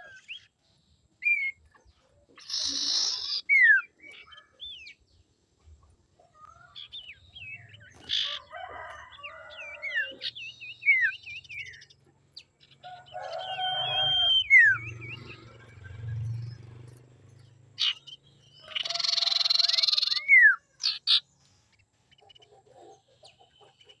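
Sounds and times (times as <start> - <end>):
bird whistling and trilling: 1.2 - 1.6, 2.4 - 5.0, 13.4 - 15.9, 17.8 - 21.2
harsh raspy bird chatter: 1.2 - 24.0.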